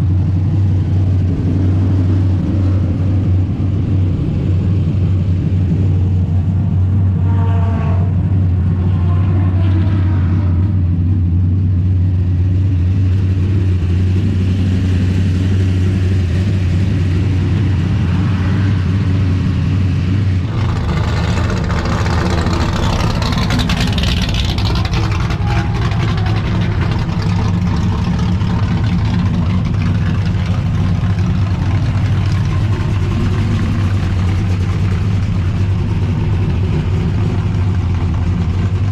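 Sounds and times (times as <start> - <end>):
racing car engine running: 0.0 - 38.9
rushing noise: 20.2 - 38.3.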